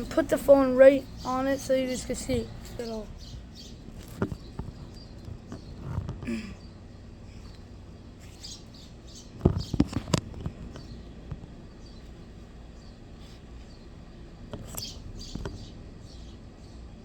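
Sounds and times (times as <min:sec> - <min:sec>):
bird chirps: 0:00.7 - 0:05.8, 0:08.2 - 0:14.0, 0:14.6 - 0:17.0.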